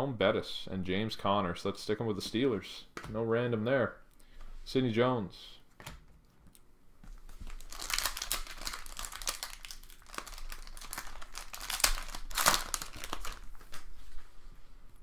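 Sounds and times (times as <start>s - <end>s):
foil wrapper crinkling and tearing: 7.4s - 13.9s.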